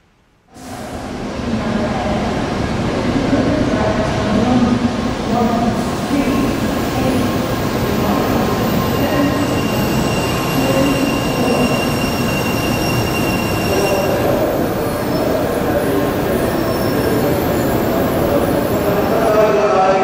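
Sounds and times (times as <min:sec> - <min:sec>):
high squealing tones: 0:08.4 - 0:19.2.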